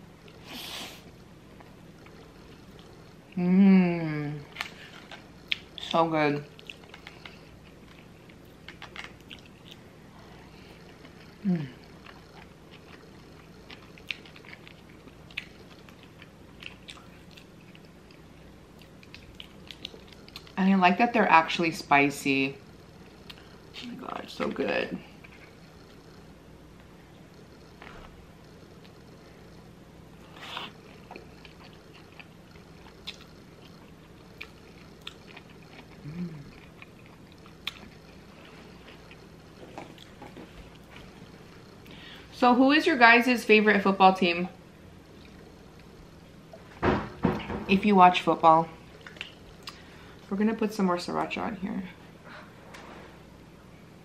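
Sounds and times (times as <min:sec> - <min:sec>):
person humming: 0:03.4 - 0:04.4, 0:11.4 - 0:11.8, 0:36.0 - 0:36.6
mouth chewing sounds: 0:04.5 - 0:09.9, 0:10.5 - 0:20.6, 0:30.2 - 0:42.0.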